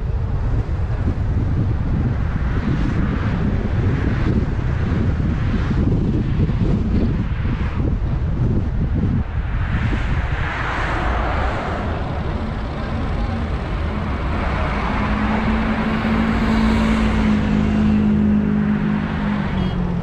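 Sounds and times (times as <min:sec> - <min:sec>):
tyre and wind noise: 0:00.0 - 0:20.0
low engine drone: 0:05.9 - 0:20.0.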